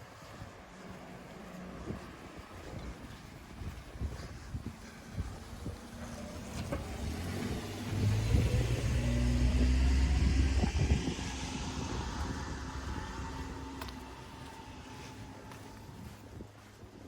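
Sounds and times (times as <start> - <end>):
vehicle engine rumble passing by: 0.0 - 17.0.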